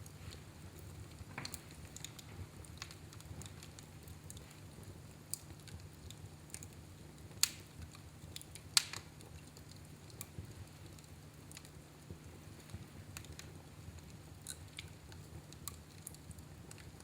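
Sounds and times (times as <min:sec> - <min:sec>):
wood fire crackling: 0:00.0 - 0:17.0
sharp pops of fire: 0:06.5 - 0:11.7.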